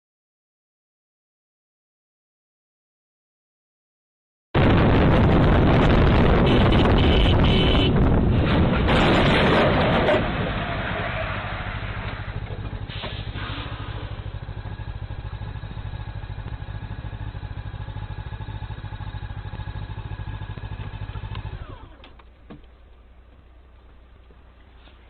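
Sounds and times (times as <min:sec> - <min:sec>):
engine running and cutting out: 0:04.6 - 0:22.6.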